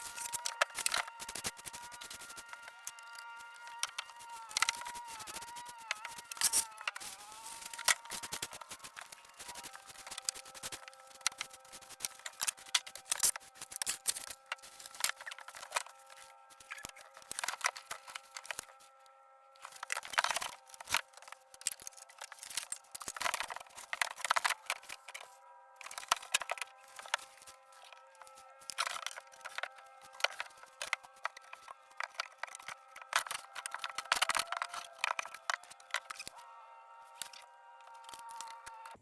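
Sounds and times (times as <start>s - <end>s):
scraping: 0.0s - 19.0s
rustling or tearing: 0.0s - 39.0s.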